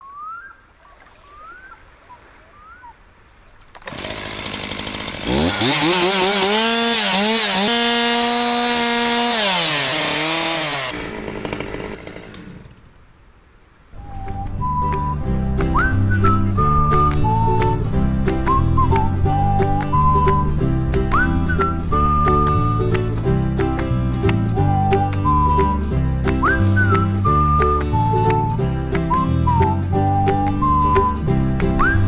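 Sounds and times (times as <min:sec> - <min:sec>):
small petrol engine revving: 0:03.8 - 0:12.9
music: 0:14.0 - 0:32.0.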